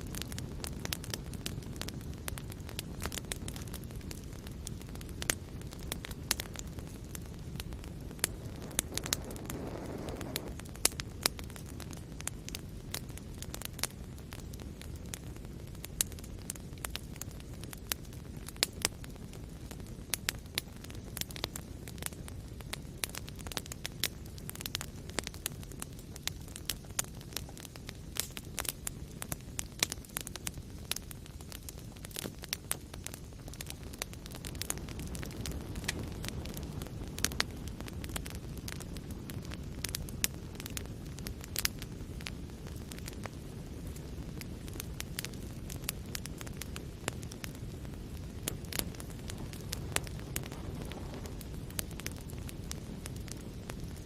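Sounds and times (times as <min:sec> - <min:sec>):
soft hiss: 0:00.0 - 0:38.0
fire crackling and popping: 0:00.0 - 0:54.0
low rumble of flames: 0:00.0 - 0:54.0.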